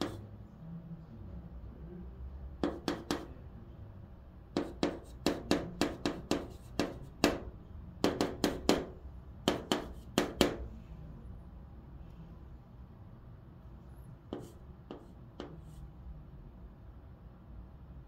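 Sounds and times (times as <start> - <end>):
chalk tapping and scraping on blackboard: 0.0 - 0.2, 2.6 - 3.3, 4.6 - 10.7, 14.3 - 15.9.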